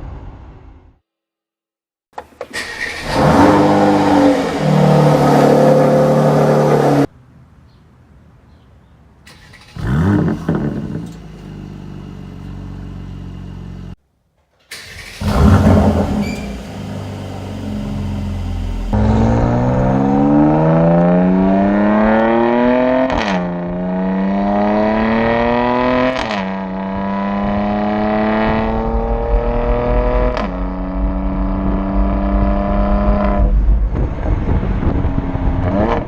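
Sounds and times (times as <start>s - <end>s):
car engine revving and idling: 2.9s - 7.1s, 9.6s - 14.0s, 14.8s - 36.0s
engine cranking: 9.3s - 11.5s, 14.6s - 17.3s.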